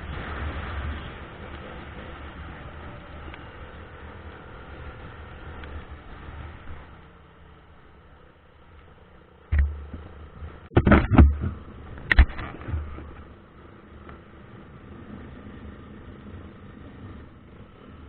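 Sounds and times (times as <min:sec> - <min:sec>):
vehicle driving on a road: 0:00.0 - 0:18.0
loud sudden thumps: 0:09.5 - 0:13.0.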